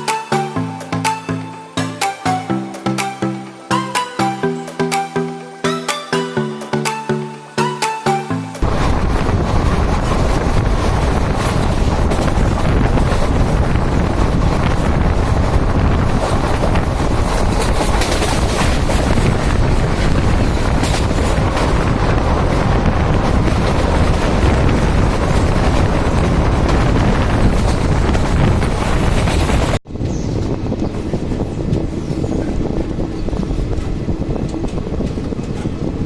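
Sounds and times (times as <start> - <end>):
moving train rushing: 0.0 - 36.0
wind buffeting microphone: 8.6 - 36.0.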